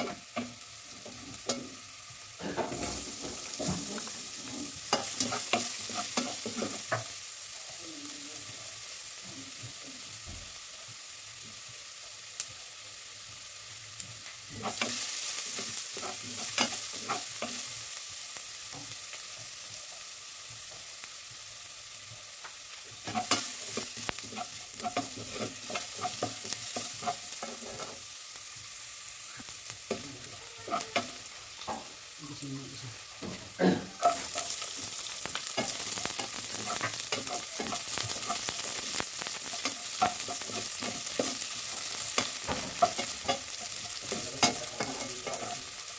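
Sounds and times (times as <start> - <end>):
food sizzling in oil: 0.0 - 45.9
spatula scraping metal pot: 23.0 - 28.0.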